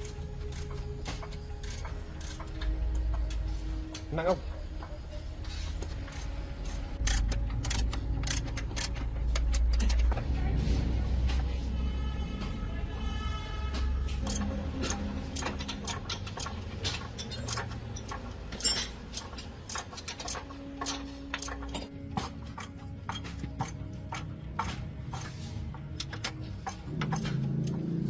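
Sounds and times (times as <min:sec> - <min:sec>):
metallic clinks of steel tools: 0:17.1 - 0:19.3.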